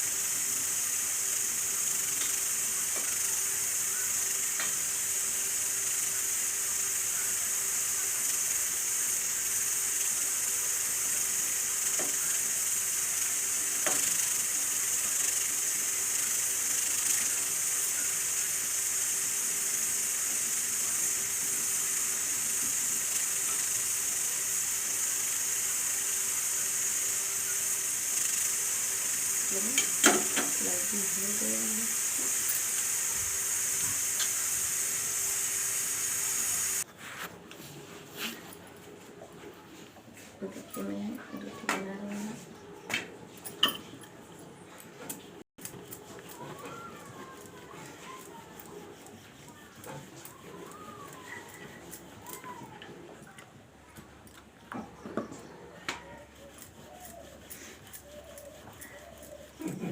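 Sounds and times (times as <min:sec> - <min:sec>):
food sizzling in a pan: 0:00.0 - 0:36.9.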